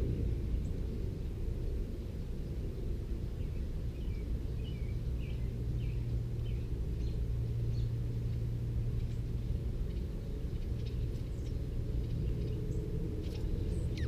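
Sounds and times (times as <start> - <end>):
low rumble: 0.0 - 14.0
birds chirping: 3.3 - 14.0.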